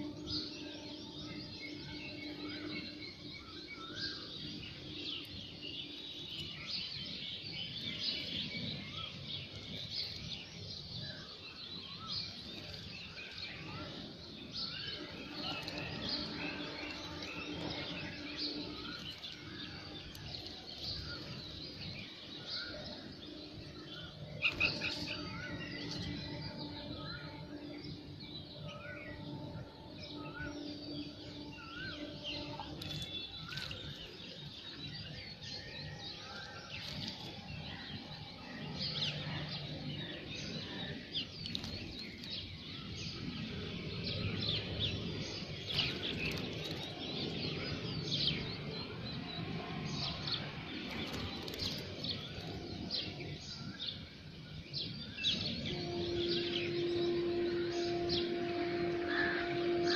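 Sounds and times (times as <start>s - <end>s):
small birds chirping: 0.0s - 35.8s, 36.4s - 58.8s
wings fluttering: 50.8s - 52.7s.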